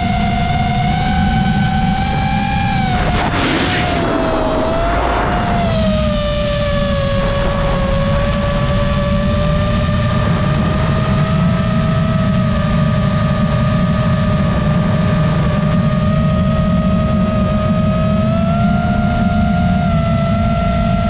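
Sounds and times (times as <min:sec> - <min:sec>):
low rushing rumble: 0:00.0 - 0:13.3
drone motor whine: 0:00.0 - 0:21.0.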